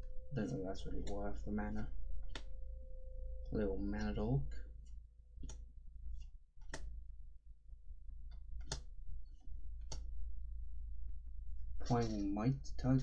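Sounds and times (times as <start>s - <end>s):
low hum: 0.0s - 13.0s
cards clicking and tapping: 5.4s - 6.9s, 8.3s - 8.9s, 9.8s - 10.1s.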